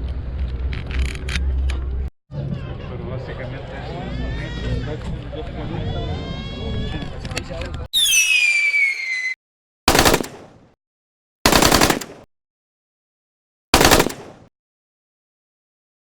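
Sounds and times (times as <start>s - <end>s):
falling whistle: 8.0s - 9.4s
rapid gunfire bursts: 9.9s - 10.5s, 11.5s - 12.3s, 13.8s - 14.5s.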